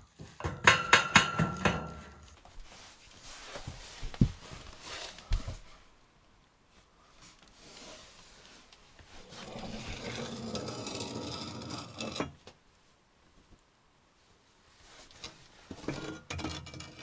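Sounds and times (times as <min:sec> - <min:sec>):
scraping over hard surface: 0:07.6 - 0:12.4, 0:14.8 - 0:17.0.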